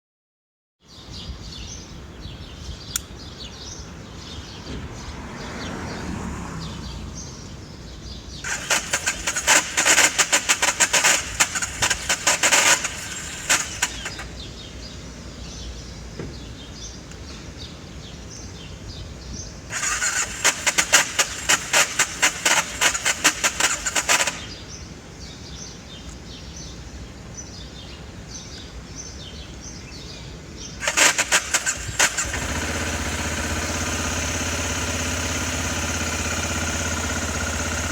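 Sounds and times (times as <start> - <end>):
motorcycle electric starter cranking: 8.4 - 14.5, 19.7 - 24.7, 30.8 - 37.9.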